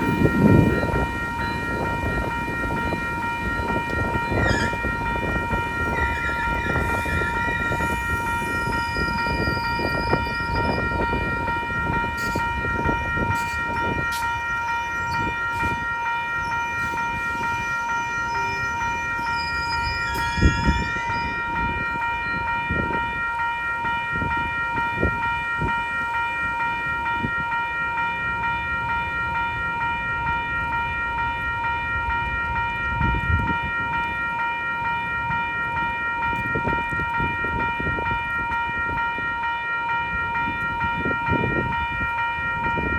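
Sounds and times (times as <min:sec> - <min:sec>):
wind buffeting microphone: 0:00.0 - 0:23.3, 0:24.1 - 0:25.8, 0:32.0 - 0:34.0, 0:35.2 - 0:39.4, 0:40.1 - 0:42.9
crossing warning bell ringing: 0:00.0 - 0:42.9
brief squeal: 0:19.2 - 0:21.3.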